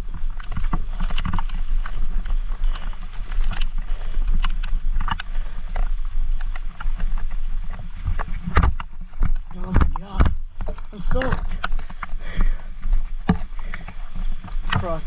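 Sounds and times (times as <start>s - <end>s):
rumble of wind and tyres: 0.0s - 15.0s.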